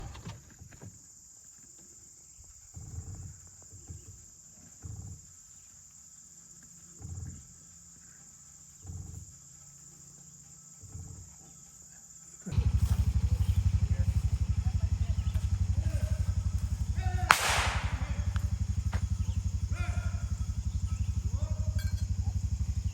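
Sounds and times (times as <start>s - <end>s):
loud pulsing engine: 12.5s - 22.9s
high-pitched insect drone: 18.0s - 22.9s.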